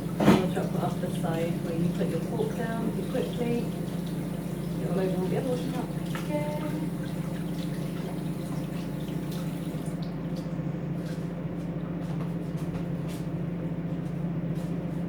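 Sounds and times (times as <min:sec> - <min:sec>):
tap water running: 0:00.0 - 0:11.2
microwave oven humming: 0:00.0 - 0:15.0.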